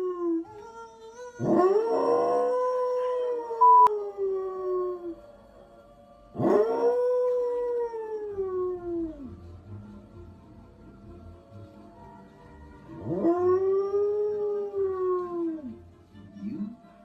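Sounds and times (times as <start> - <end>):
dog howling: 1.4 - 5.2
short loud beep: 3.6 - 3.9.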